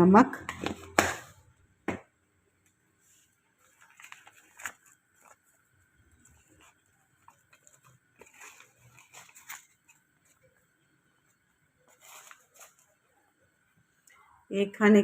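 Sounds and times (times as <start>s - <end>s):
spoon clicks and rustles: 3.6s - 10.5s.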